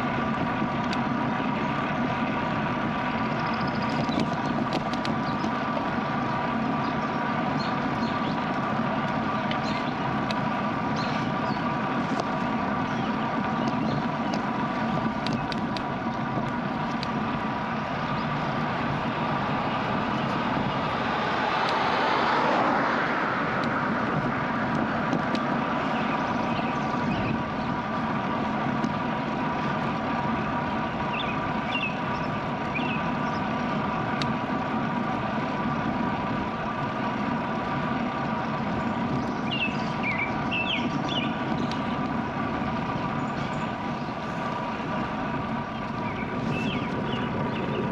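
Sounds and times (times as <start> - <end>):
bicycle road noise: 0.0 - 47.9
motor vehicle passing: 0.0 - 47.9
wind noise: 11.0 - 33.9, 38.4 - 47.9.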